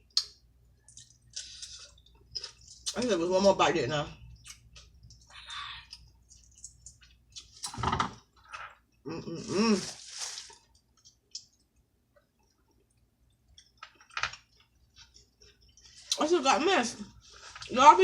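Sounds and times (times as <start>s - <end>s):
wet chewing and lip smacks: 0.0s - 3.0s, 4.3s - 7.8s, 10.5s - 16.2s.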